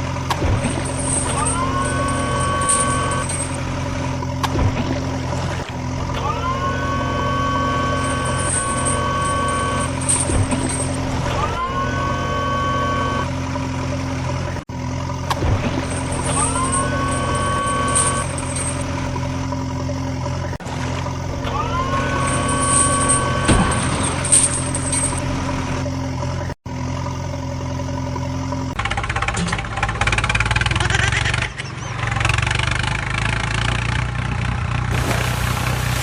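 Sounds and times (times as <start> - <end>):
two-tone rising whine: 0.0 - 14.6
heavy vehicle engine running: 0.0 - 36.0.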